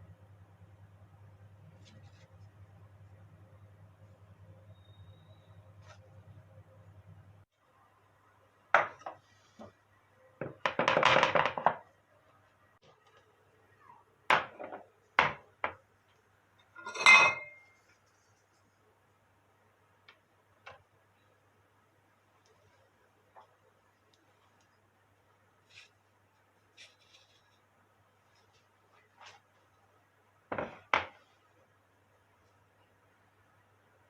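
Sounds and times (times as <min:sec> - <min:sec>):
dishes clinking and knocking: 0:16.7 - 0:17.8
scraping or rustling: 0:25.6 - 0:29.7.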